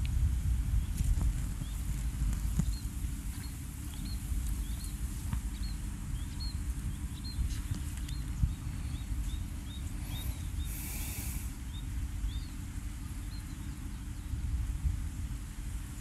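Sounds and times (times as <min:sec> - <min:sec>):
steady low rumble: 0:00.0 - 0:16.0
small bird high chirp: 0:03.9 - 0:12.6.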